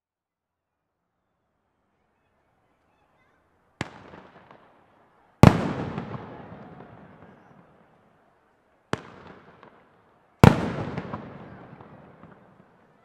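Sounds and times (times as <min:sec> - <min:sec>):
fireworks bangs echoing: 0:03.8 - 0:08.0, 0:08.9 - 0:13.0.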